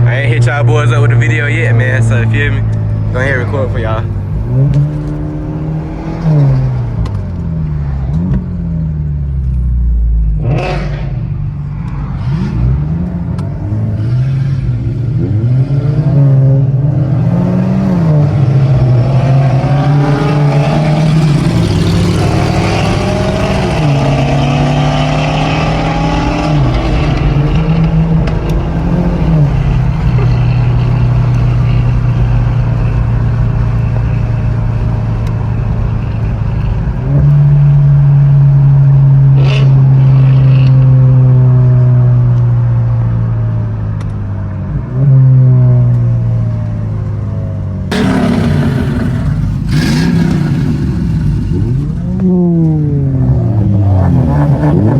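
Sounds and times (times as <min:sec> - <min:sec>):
car engine accelerating: 0:00.0 - 0:54.9
loud rush: 0:47.9 - 0:51.8.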